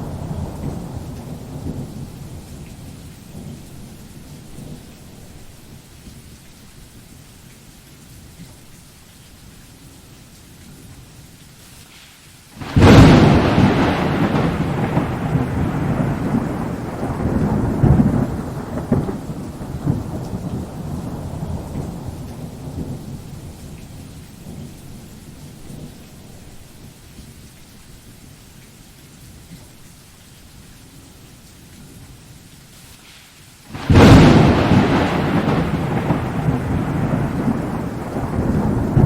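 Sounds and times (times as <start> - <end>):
thunder rumbling: 0.0 - 5.6, 12.6 - 27.0, 33.7 - 39.0
steady rain hissing: 0.0 - 39.0.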